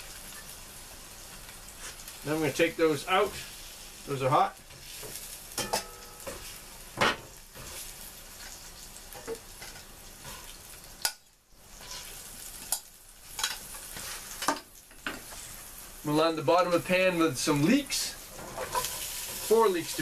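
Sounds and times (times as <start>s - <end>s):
pears sizzling in hot oil: 0.0s - 20.0s.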